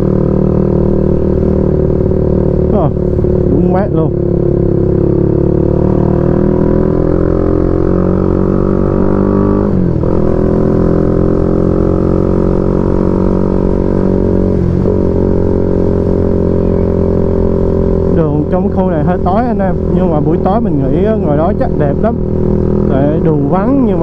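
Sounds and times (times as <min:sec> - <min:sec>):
motorcycle engine droning: 0:00.0 - 0:24.0.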